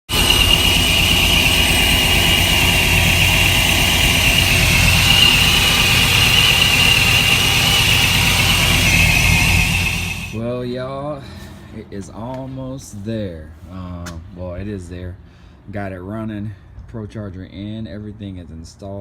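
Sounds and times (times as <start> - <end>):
supercharger whine: 0.0 - 10.7
engine idling rumble: 0.0 - 12.6.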